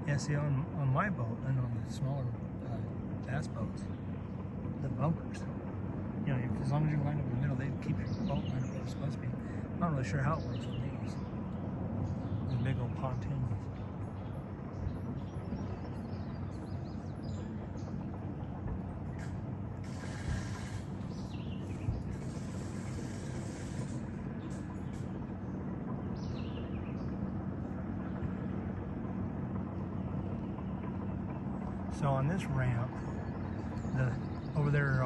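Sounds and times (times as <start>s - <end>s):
engine humming: 0.0s - 35.0s
bird chirps: 7.8s - 27.3s.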